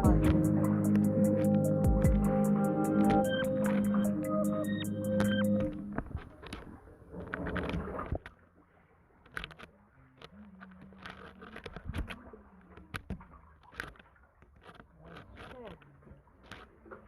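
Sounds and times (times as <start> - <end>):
clicks and knocks on kayak: 9.2 - 17.0.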